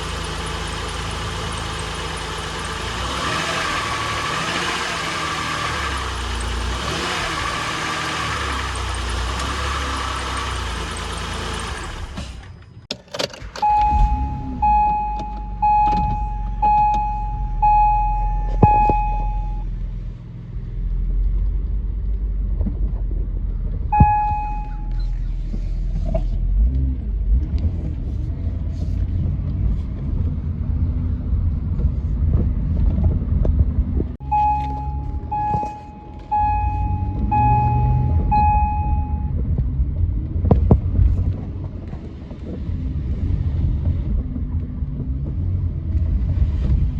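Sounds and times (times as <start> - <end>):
car engine and road rumble: 0.0 - 46.9
dashboard warning chime: 13.5 - 19.7, 24.0 - 25.1, 34.2 - 39.4.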